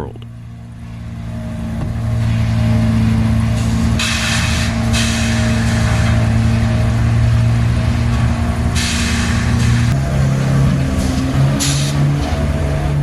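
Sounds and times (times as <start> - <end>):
heavy machinery engine running: 0.0 - 13.0
hissing burst: 2.2 - 7.2, 8.6 - 10.0, 11.0 - 12.1.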